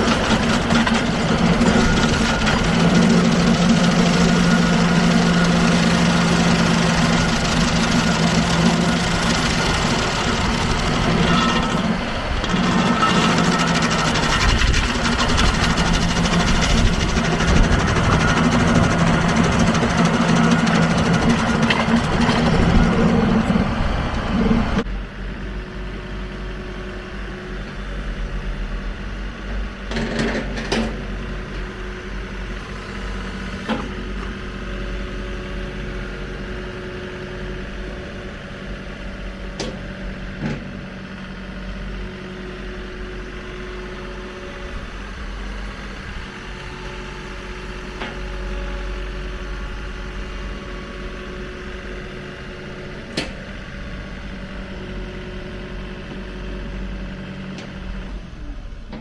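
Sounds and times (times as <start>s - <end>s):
stump grinder grinding: 0.0s - 24.8s, 26.5s - 58.2s
tractor diesel engine running: 0.0s - 59.0s.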